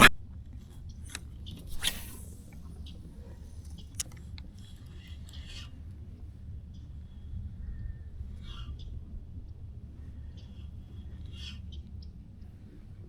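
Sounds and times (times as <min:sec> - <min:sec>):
low steady rumble: 0:00.0 - 0:13.0
clicks and scrapes in kayak: 0:00.9 - 0:05.7.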